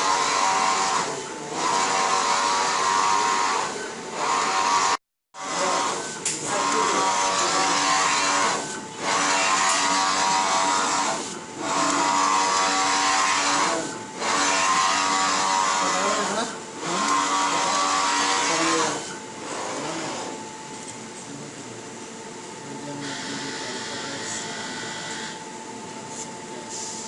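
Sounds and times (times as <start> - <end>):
small electric motor whining: 0.0 - 20.4.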